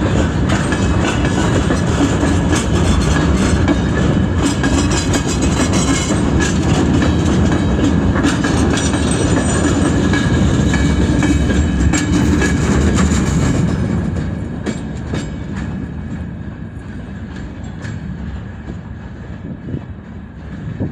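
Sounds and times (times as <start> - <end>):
train wheels clacking: 0.0 - 20.9.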